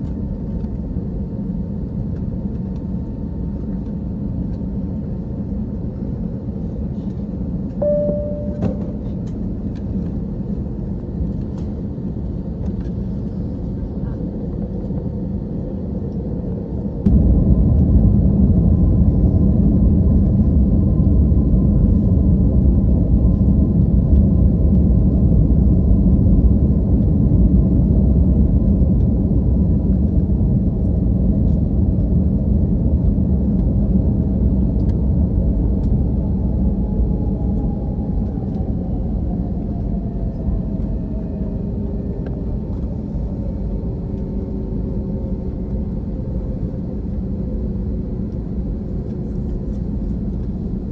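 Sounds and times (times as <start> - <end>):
airliner cabin rumble: 0.0 - 50.9
faint whining tones: 7.7 - 14.2.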